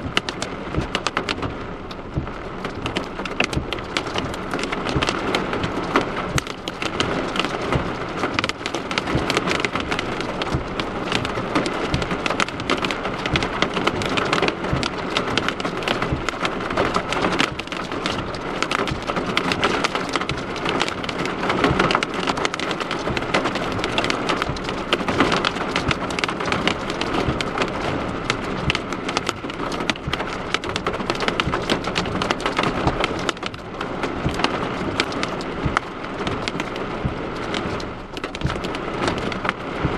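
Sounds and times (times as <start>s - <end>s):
heavy rain on hard surface: 0.0s - 39.9s.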